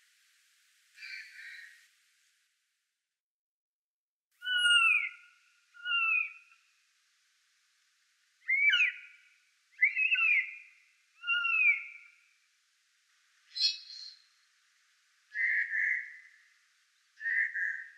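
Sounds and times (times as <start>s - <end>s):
bird whistled calls: 4.4s - 6.5s, 8.4s - 9.1s, 9.8s - 12.2s, 13.5s - 14.2s, 15.4s - 16.3s, 17.2s - 17.9s.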